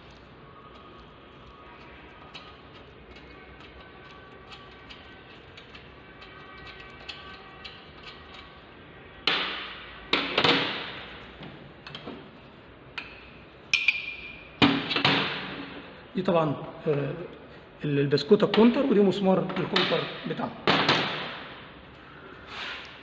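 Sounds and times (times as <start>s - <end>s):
metal ticks and clicks: 1.8s - 8.6s.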